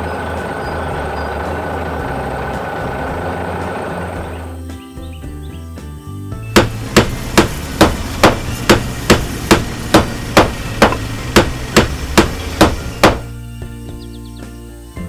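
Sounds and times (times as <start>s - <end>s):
low hum: 0.0s - 4.6s
hammer striking: 6.6s - 13.3s.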